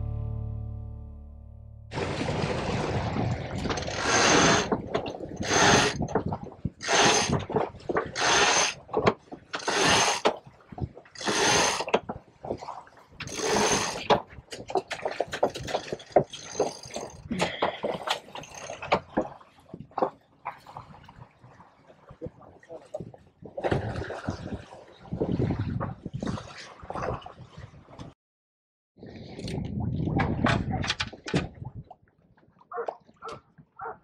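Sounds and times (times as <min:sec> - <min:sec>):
water splashing: 0:01.9 - 0:28.0.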